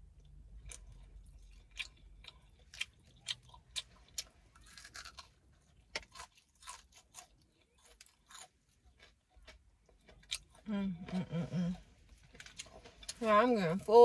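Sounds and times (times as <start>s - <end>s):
crunchy chewing: 0.6s - 10.7s.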